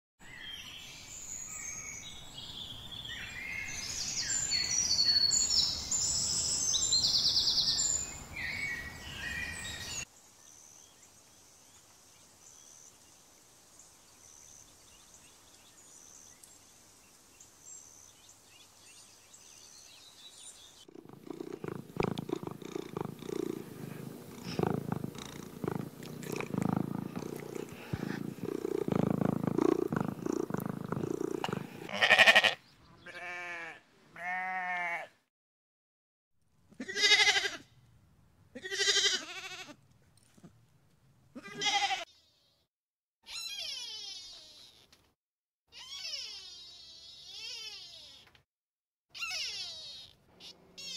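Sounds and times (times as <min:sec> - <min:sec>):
birds chirping: 0:19.4 - 0:33.3
animal bleating: 0:21.0 - 0:35.1, 0:36.8 - 0:37.7, 0:38.6 - 0:39.8, 0:41.4 - 0:42.1.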